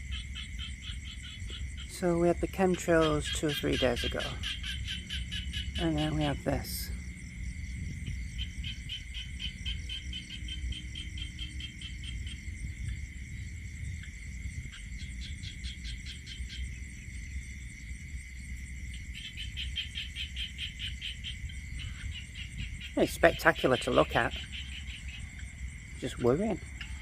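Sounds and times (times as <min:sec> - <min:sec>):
fast pulsed insect chirping: 0:00.0 - 0:27.0
high-pitched insect drone: 0:00.0 - 0:27.0
low rumble: 0:04.0 - 0:19.2.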